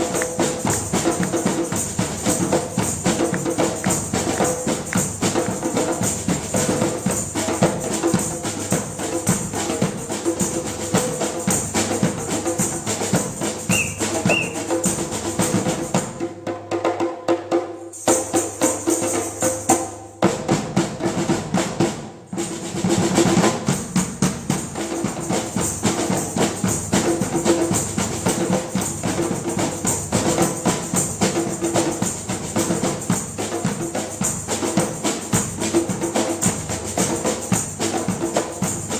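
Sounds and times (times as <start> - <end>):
drum ensemble playing: 0.0 - 16.3.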